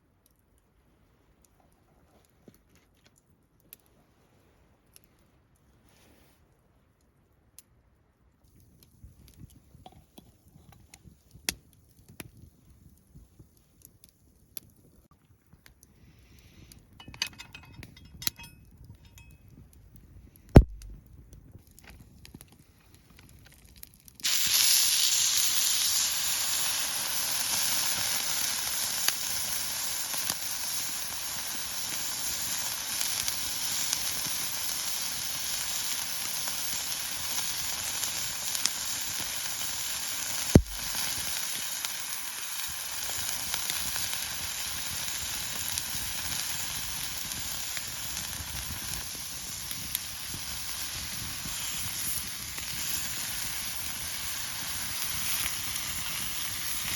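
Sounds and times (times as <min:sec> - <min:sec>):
meat sizzling on a griddle: 0:24.2 - 0:56.9.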